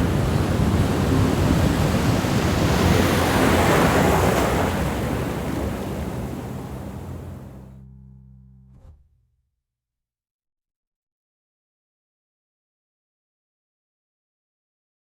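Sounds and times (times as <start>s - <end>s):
sea waves washing in: 0.0s - 7.7s.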